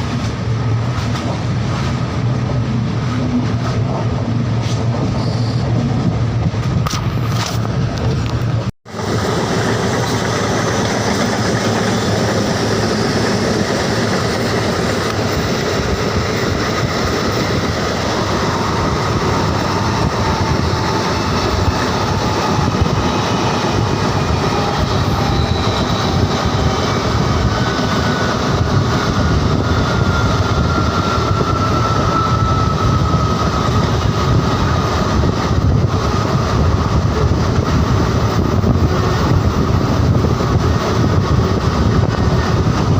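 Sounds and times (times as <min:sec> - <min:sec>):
train wheels rumbling on rails: 0:00.0 - 0:42.9
faint thin squeal: 0:05.2 - 0:05.7.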